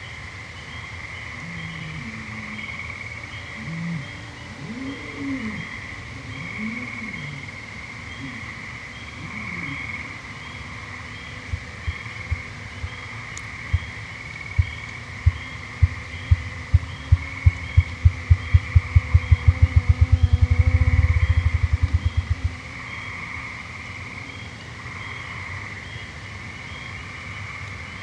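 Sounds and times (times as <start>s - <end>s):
grouse drumming wingbeat thumps: 11.5s - 13.1s, 13.7s - 22.6s.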